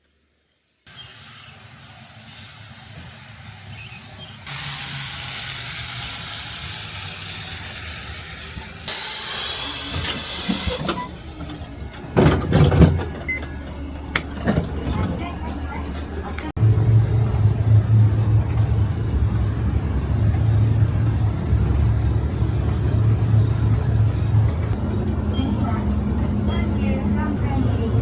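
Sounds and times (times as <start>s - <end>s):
vehicle noise hiss: 0.9s - 11.5s
burst of hissing air: 4.5s - 11.5s.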